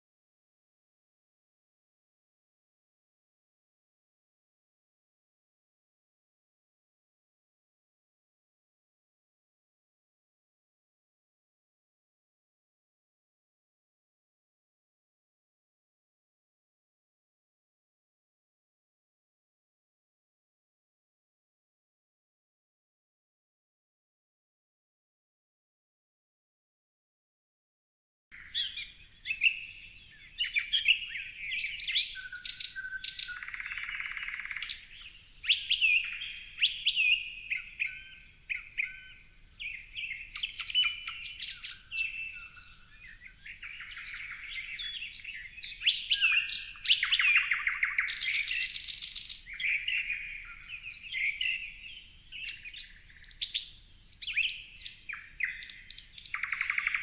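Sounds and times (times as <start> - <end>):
songbirds singing and calling: 28.4 - 57.0.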